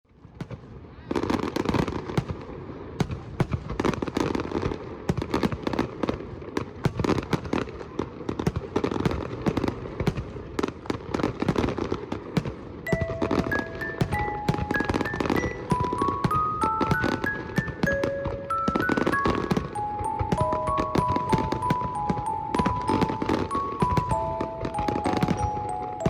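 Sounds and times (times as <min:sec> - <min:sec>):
fireworks bangs and crackles: 0:00.1 - 0:26.0.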